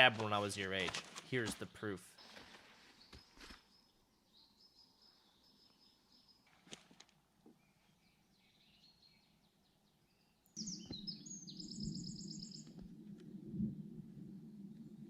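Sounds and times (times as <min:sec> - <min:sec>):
songbird trilling: 0:10.6 - 0:12.8.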